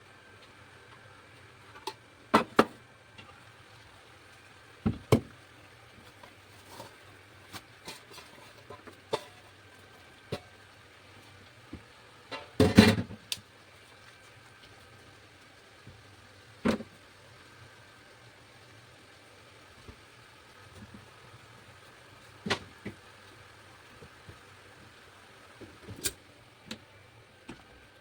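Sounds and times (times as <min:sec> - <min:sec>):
utensils and dishes clattering: 0:12.3 - 0:13.2.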